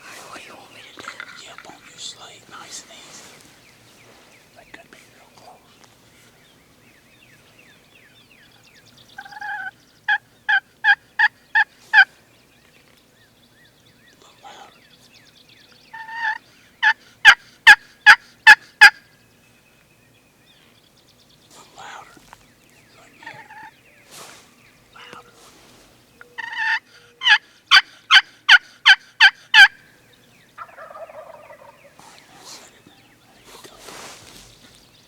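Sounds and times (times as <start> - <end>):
turkey hen yelping: 9.2 - 12.1, 15.9 - 19.0, 23.2 - 23.7, 25.0 - 25.3, 26.4 - 29.8, 30.6 - 32.0.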